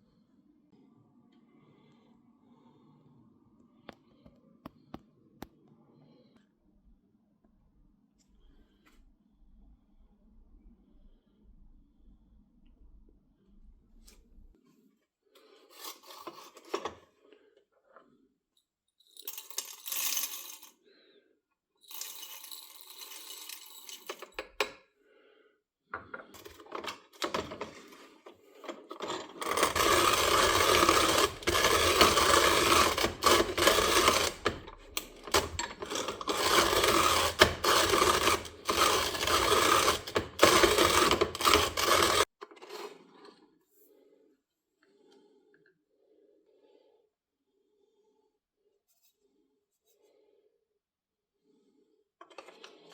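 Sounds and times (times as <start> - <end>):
coffee grinder rattling: 19.1 - 20.7, 21.8 - 24.5, 26.4 - 43.0
burrs grinding coffee beans: 26.2 - 43.2.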